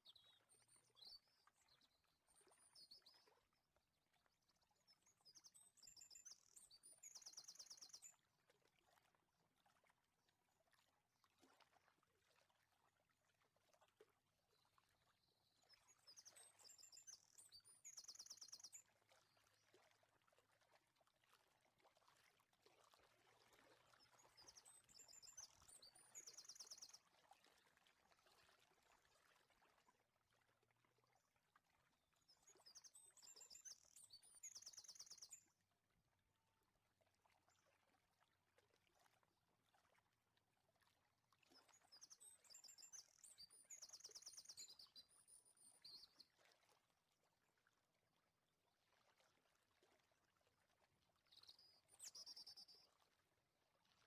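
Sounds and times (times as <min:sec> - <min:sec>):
faint bird chirping and trills: 0:00.0 - 0:03.5, 0:04.3 - 0:08.2, 0:15.2 - 0:19.6, 0:24.0 - 0:27.1, 0:32.2 - 0:35.5, 0:41.5 - 0:46.5, 0:51.2 - 0:53.1.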